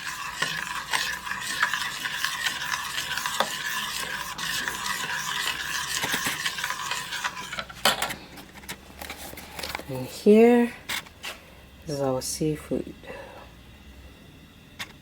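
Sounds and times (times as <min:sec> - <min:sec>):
spoon scraping a pot: 0:00.0 - 0:09.8.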